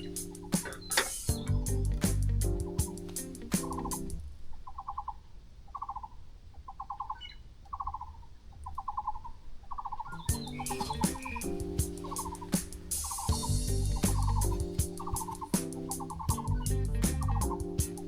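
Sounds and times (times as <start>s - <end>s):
background music: 0.0s - 4.2s, 10.2s - 18.0s
bird calling with trills: 0.0s - 18.0s.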